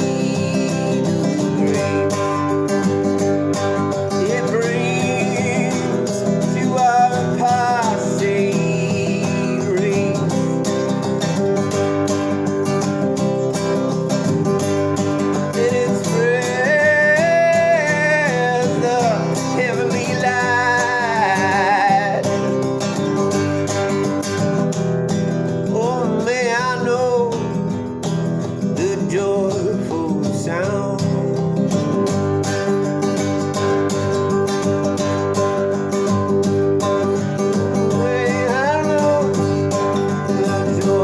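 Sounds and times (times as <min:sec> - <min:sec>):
person singing: 0:00.0 - 0:02.9, 0:04.0 - 0:11.3, 0:13.2 - 0:23.3, 0:25.6 - 0:27.8, 0:28.8 - 0:31.6, 0:37.6 - 0:41.0
acoustic guitar strumming: 0:00.0 - 0:41.0.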